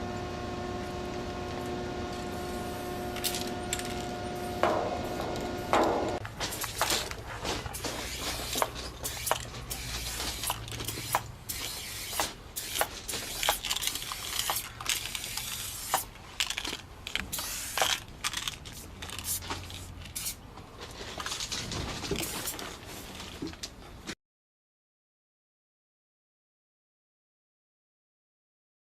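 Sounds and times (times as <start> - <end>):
spray cans hissing: 2.3 - 20.4, 22.1 - 23.2.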